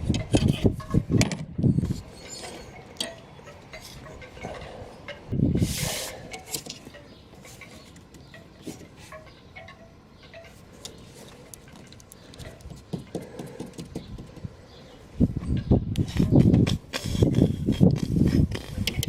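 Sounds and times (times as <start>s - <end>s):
hand tools clicking and clinking: 0.1s - 14.5s.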